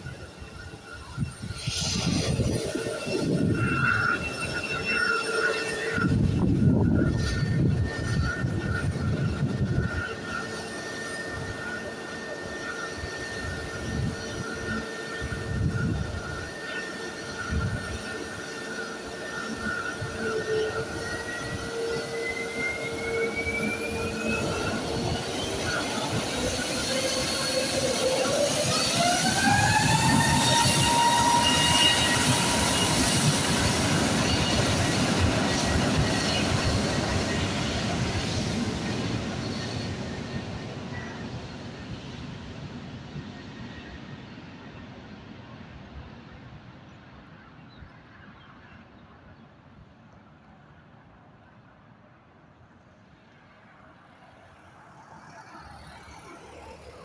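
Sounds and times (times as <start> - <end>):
wind buffeting microphone: 0.0 - 5.0, 5.8 - 10.4, 12.2 - 46.8
jet engines whining: 0.0 - 46.4.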